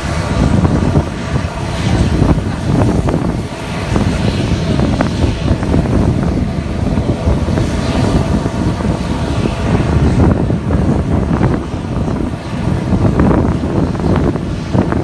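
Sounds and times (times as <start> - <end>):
jet engines rumbling: 0.0 - 15.0
wind buffeting microphone: 0.0 - 15.0.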